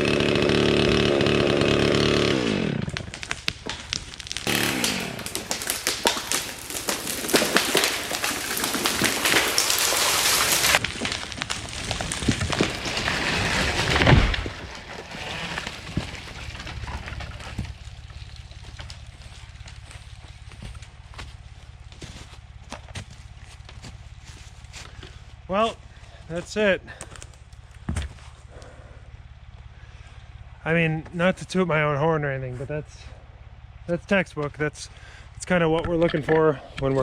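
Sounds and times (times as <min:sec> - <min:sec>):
chainsaw running: 0:00.0 - 0:21.3
tree cracking: 0:00.0 - 0:28.5
branches crashing through canopy: 0:02.0 - 0:25.5.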